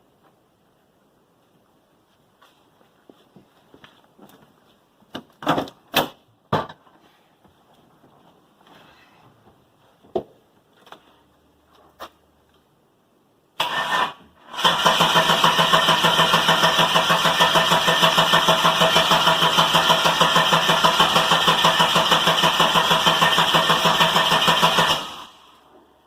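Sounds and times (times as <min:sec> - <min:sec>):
starter motor cranking engine: 0:13.6 - 0:25.4.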